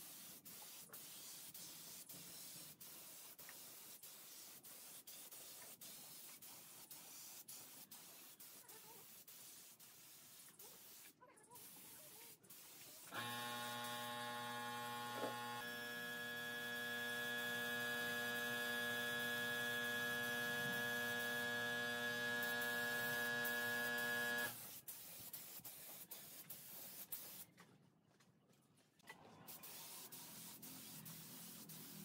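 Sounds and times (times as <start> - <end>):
electric buzzing hum: 13.2 - 24.5.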